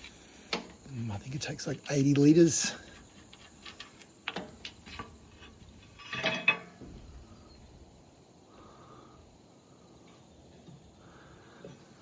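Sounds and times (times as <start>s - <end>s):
light metallic clicks and knocks: 3.3s - 6.9s
clattering scrape: 4.7s - 7.0s.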